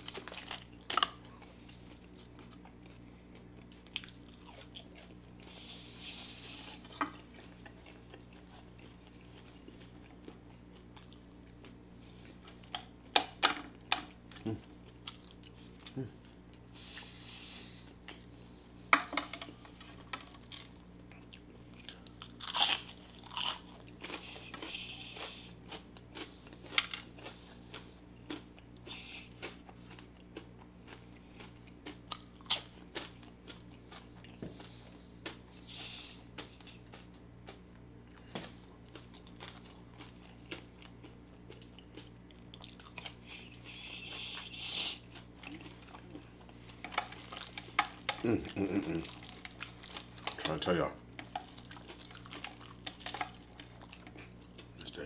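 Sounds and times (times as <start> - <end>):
crunching fried chicken: 0.0 - 5.2, 19.6 - 55.0
chewing and lip smacks: 20.2 - 50.5.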